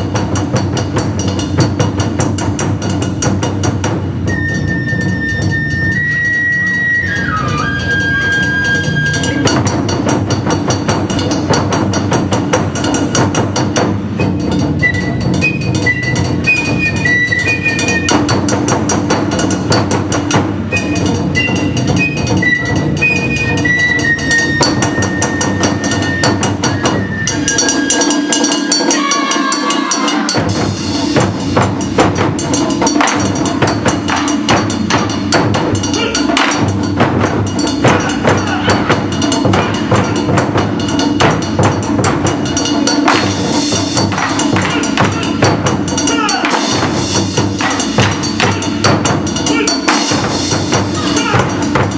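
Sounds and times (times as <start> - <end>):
drums striking: 0.0 - 51.9
held high note: 23.4 - 30.6.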